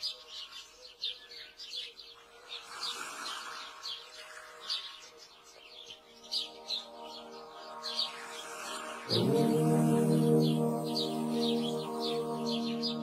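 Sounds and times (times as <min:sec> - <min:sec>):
birds chirping: 0:00.0 - 0:13.0
faint sustained music tones: 0:00.0 - 0:13.0.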